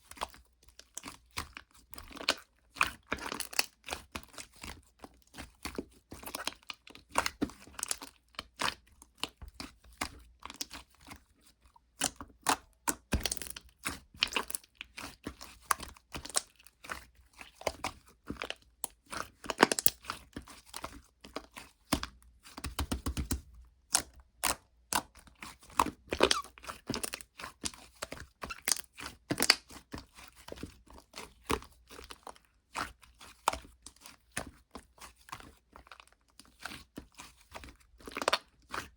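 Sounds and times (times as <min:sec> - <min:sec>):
slime squeezed by hand crackling: 0:26.1 - 0:26.6.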